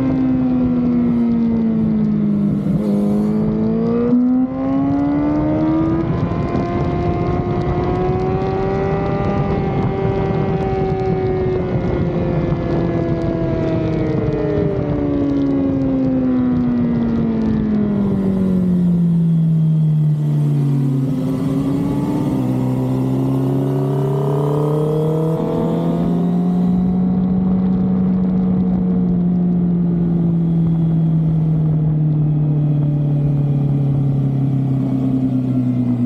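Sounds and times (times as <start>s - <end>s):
motorcycle engine: 0.0s - 36.0s
wind rushing over microphone: 0.0s - 36.0s
gear change: 14.6s - 36.0s.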